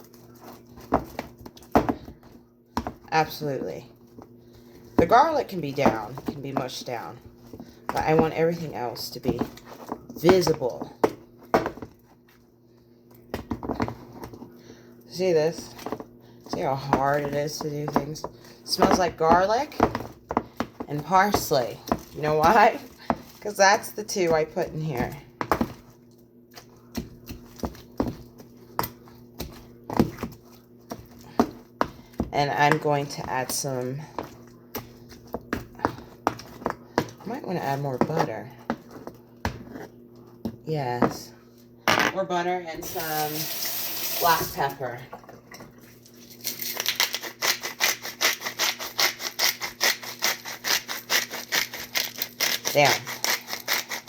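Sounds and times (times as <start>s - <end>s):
faint steady hum: 0.0s - 54.0s
pepper mill grinding: 42.8s - 44.5s, 46.3s - 54.0s.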